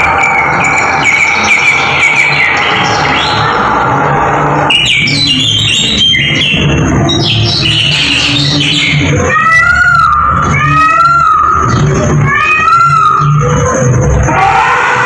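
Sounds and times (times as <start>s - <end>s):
music: 0.0s - 15.0s
recorded bird calls over loudspeakers: 0.0s - 15.0s.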